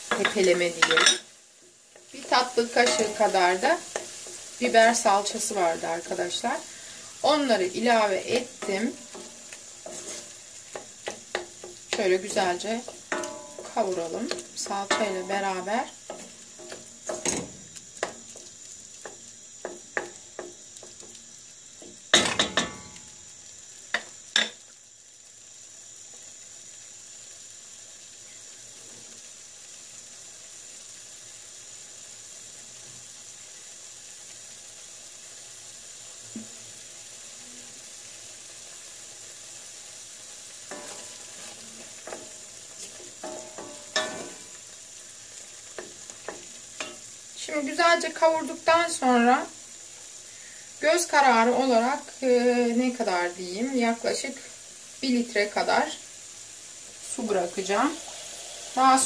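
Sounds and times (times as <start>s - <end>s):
paste sizzling in a pot: 0.0s - 59.0s
wooden spoon scraping a pot: 8.3s - 15.1s.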